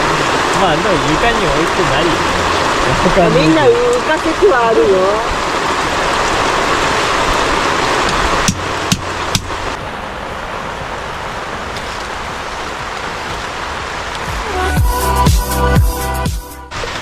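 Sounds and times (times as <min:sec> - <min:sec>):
heavy rain pouring: 0:00.0 - 0:17.0
sharp knocks: 0:08.4 - 0:09.5.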